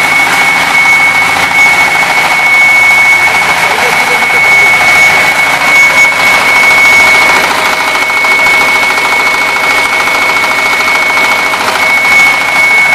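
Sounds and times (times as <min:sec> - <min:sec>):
concrete cutting machine engine: 0:00.0 - 0:12.9
high-pitched whine: 0:00.0 - 0:12.9.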